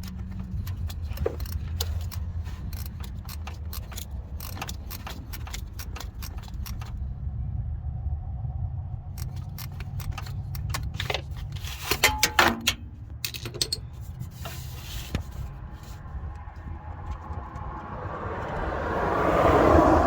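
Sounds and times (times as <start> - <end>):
steady low rumble: 0.0 - 19.2
metal hand tools clinking: 9.2 - 14.1.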